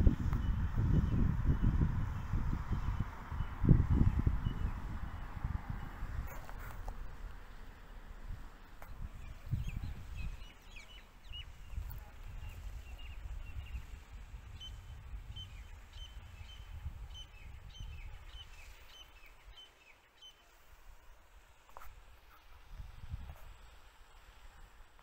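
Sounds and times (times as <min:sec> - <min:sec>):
small birds chirping: 0:08.8 - 0:20.6.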